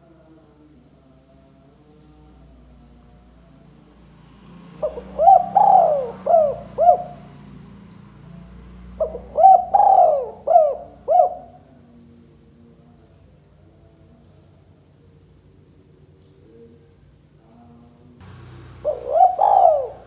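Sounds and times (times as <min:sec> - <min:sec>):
faint high-pitched insect buzz: 0:00.0 - 0:20.0
dove cooing: 0:04.8 - 0:07.3, 0:09.0 - 0:11.6, 0:18.2 - 0:20.0.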